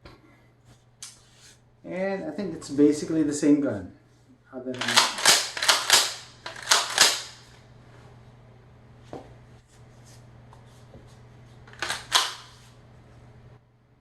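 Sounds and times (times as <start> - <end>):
shotgun slide racking: 4.8 - 7.4, 11.7 - 12.5.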